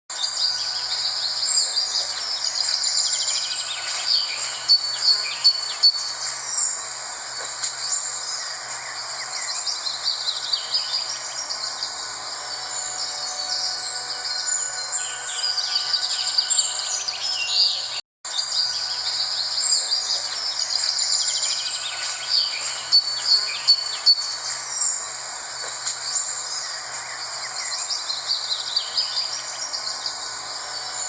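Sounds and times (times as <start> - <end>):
birds chirping and twittering: 0.1 - 31.0
high insect trill: 0.4 - 17.9.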